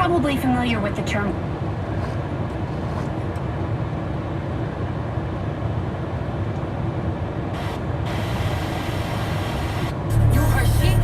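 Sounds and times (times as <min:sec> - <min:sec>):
truck engine idling: 0:08.0 - 0:11.0.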